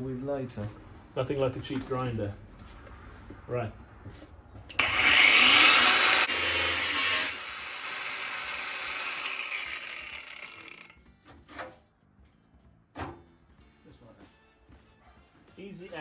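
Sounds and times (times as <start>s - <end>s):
angle grinder cutting sheet steel: 4.7s - 11.0s.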